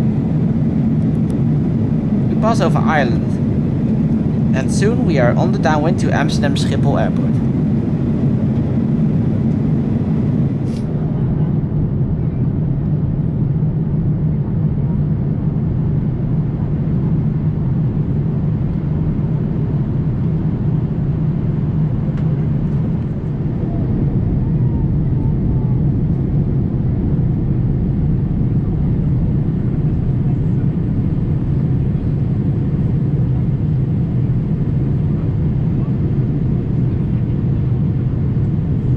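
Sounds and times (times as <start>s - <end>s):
airliner cabin rumble: 0.0s - 16.9s, 18.3s - 38.9s.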